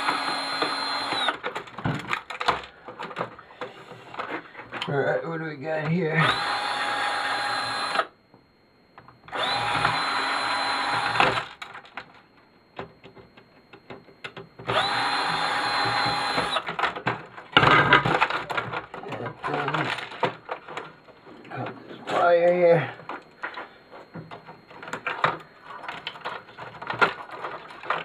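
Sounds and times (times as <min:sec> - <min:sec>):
power drill whining: 0:00.0 - 0:01.4, 0:06.2 - 0:08.2, 0:09.3 - 0:11.7, 0:14.6 - 0:16.8
loose parts clattering: 0:16.0 - 0:22.2, 0:23.0 - 0:28.0.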